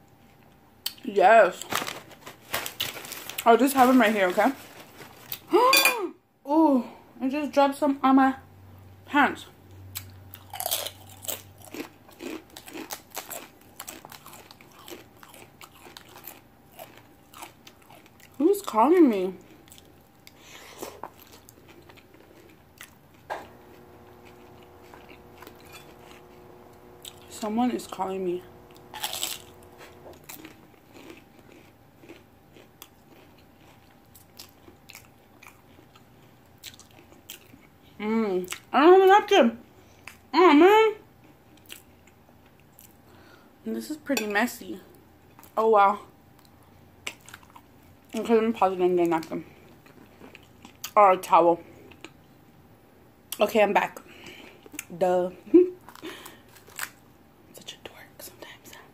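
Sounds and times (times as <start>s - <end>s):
crunching crisp food: 9.9s - 20.4s, 21.1s - 37.7s, 55.8s - 57.1s.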